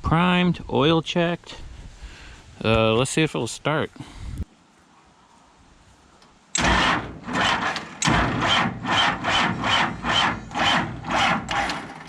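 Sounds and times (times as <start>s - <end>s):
diesel engine cranking: 6.5s - 12.0s.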